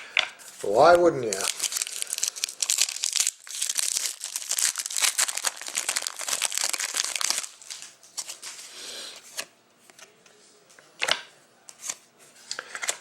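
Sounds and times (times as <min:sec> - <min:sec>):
wrapper tearing and crinkling: 0:00.6 - 0:08.5.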